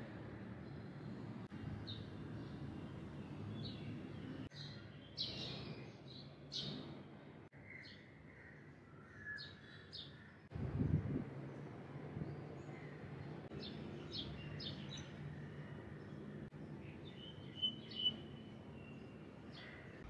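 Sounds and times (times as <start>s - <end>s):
birds calling and chirping: 12.4s - 20.0s.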